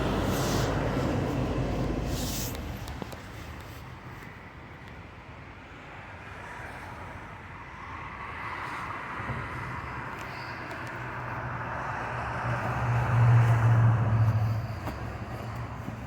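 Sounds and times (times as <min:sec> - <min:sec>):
vehicle engine running: 0:00.0 - 0:03.8
tyre road noise: 0:00.0 - 0:16.0.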